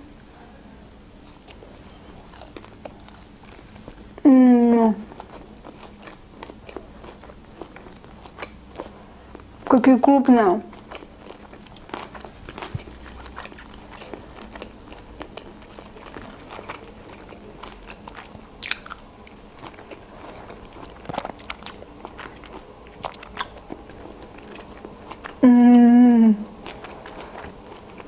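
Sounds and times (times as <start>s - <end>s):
person chewing with wet mouth clicks: 5.1s - 9.6s, 10.7s - 25.4s.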